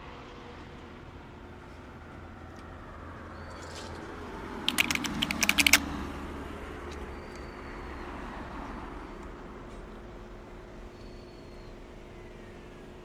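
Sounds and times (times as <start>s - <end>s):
run of sharp clicks: 3.5s - 9.3s.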